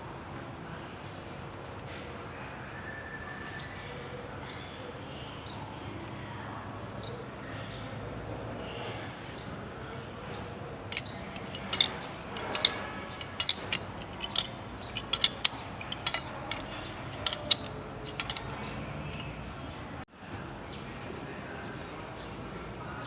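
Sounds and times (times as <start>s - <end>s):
metal tools clinking: 10.9s - 19.6s.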